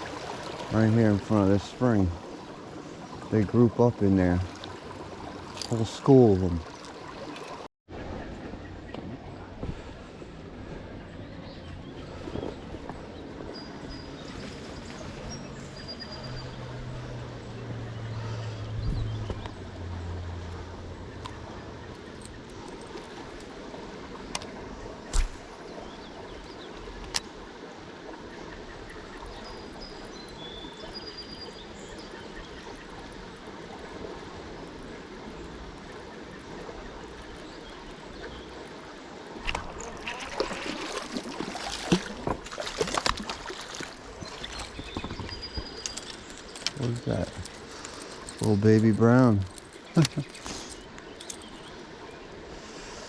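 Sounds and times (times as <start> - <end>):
creek water trickling: 0.0 - 53.0.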